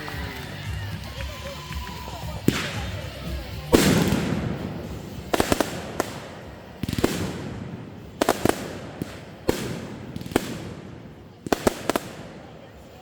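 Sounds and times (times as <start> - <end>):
firework crackle: 0.0 - 13.0
firework pops and bangs: 1.0 - 13.0
firework boom: 3.7 - 11.1.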